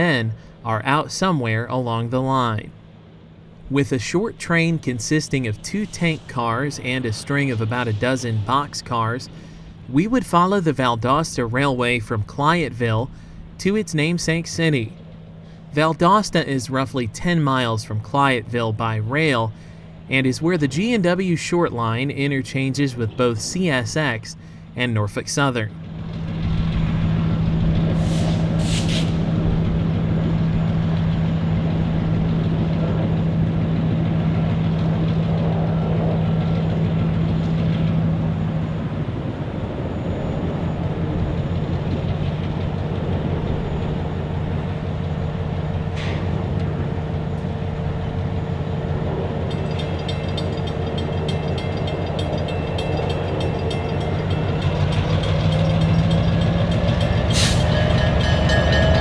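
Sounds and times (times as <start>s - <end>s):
diesel locomotive engine droning: 0.0s - 59.0s
short high hisses: 28.0s - 29.3s
rapid ticking: 49.3s - 59.0s.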